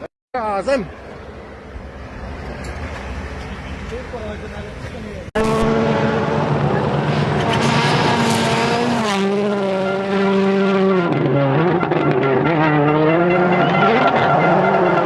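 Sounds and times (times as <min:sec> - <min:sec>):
rally car engine revving: 0:05.3 - 0:15.0.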